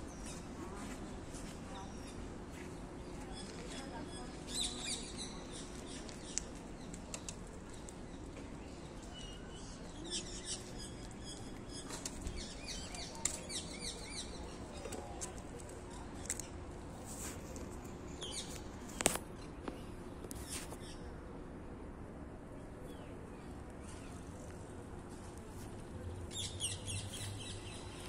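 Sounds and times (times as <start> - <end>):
low city hum: 0.0 - 28.0
small birds chirping: 1.4 - 16.6, 26.3 - 28.0.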